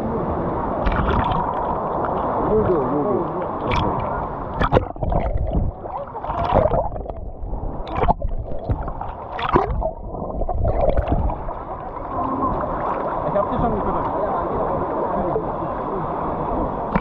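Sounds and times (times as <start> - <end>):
sea water gurgling and sloshing: 0.0 - 17.0
bubbling clicks: 0.8 - 2.1, 3.6 - 11.6.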